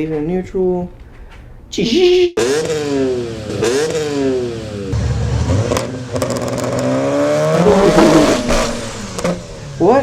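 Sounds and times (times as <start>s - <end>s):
car engine revving: 2.4s - 10.0s.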